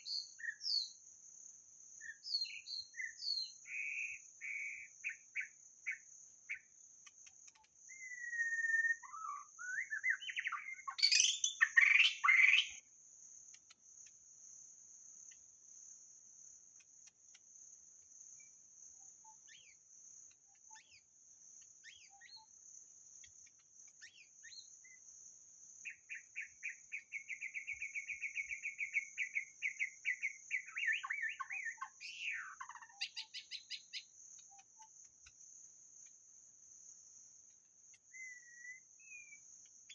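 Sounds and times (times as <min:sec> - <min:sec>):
bird singing whistled phrases: 0:07.9 - 0:12.8, 0:26.1 - 0:33.8, 0:38.1 - 0:39.4.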